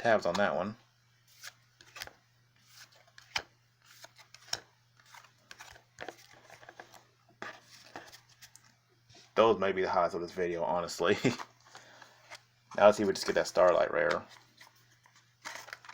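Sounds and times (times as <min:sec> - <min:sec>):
trading cards being handled: 0:01.3 - 0:08.8, 0:11.2 - 0:15.9.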